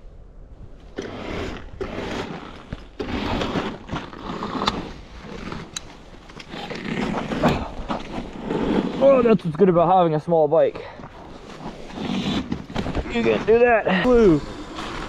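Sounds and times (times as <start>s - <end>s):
tyres crunching over ice and snow: 1.0s - 9.7s.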